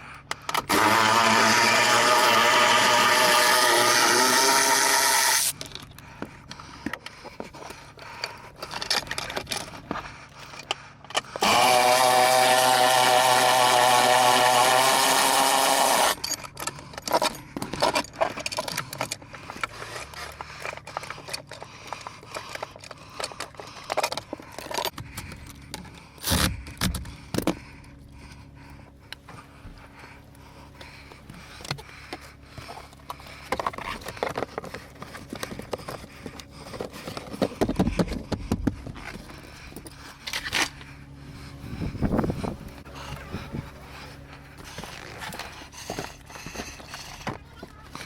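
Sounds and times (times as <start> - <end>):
motor running loudly: 0.0 - 5.8, 8.6 - 48.0
hand tools clicking and scraping: 0.0 - 48.0.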